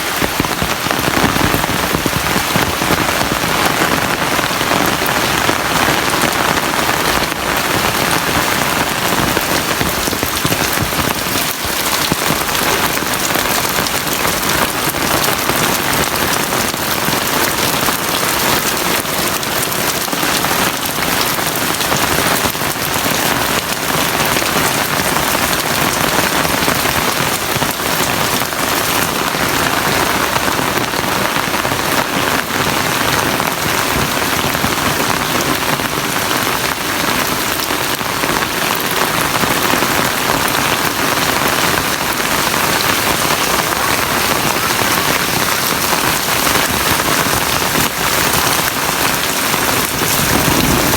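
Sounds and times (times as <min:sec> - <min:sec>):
heavy rain falling: 0:00.0 - 0:50.9.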